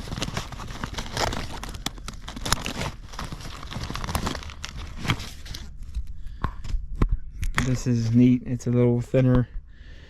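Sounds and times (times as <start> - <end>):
rummaging through tools: 0.0 - 6.8.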